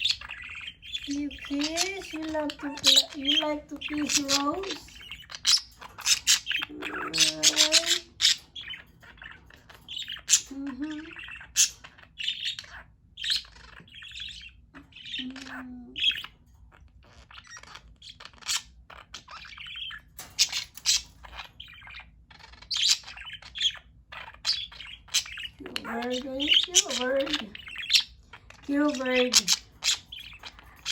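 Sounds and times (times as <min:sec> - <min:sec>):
budgie chirping and chattering: 0:00.0 - 0:30.9.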